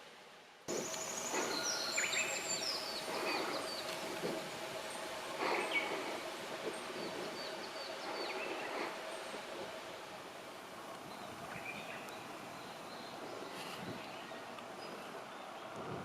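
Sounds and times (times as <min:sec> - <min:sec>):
faint steady hum: 0:00.0 - 0:16.0
bird calls: 0:00.7 - 0:09.7.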